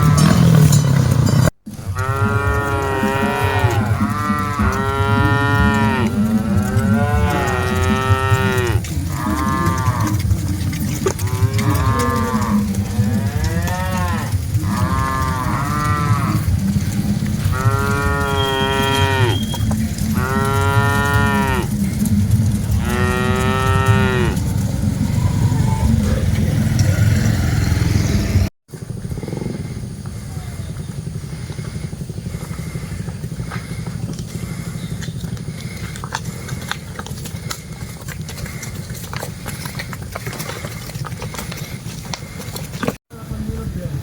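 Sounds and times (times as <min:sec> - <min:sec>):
cattle mooing: 0:00.0 - 0:00.8, 0:01.8 - 0:28.0
low rumble: 0:00.0 - 0:38.6.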